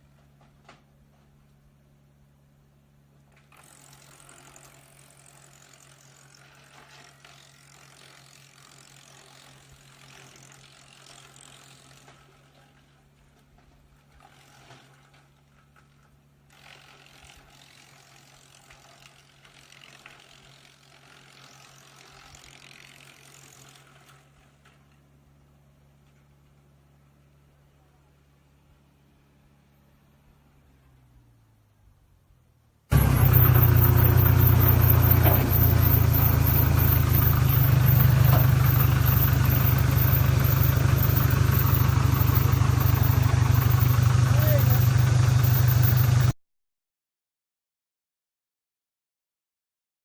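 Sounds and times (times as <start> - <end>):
wood chipper humming: 3.2 - 25.0, 32.9 - 46.3.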